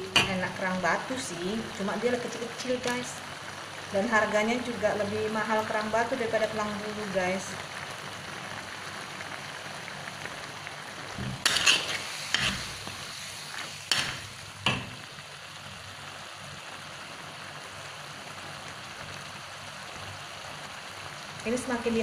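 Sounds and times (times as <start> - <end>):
food sizzling in a pan: 0.0 - 22.0
metal spatula scraping a pan: 11.2 - 13.0.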